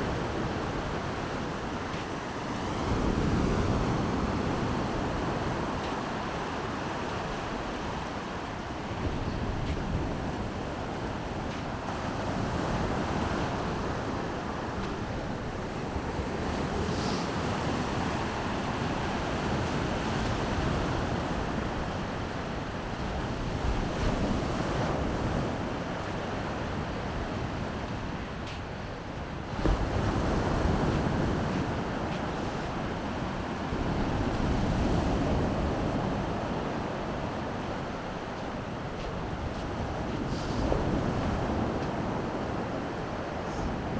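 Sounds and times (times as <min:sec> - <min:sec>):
wind buffeting microphone: 0:00.0 - 0:28.6
sea surf washing ashore: 0:00.0 - 0:43.9.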